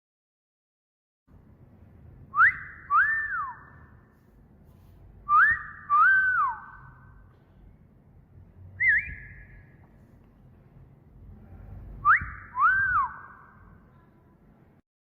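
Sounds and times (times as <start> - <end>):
wolf whistle: 2.3 - 3.9, 5.3 - 7.1, 8.8 - 9.7, 12.0 - 13.6.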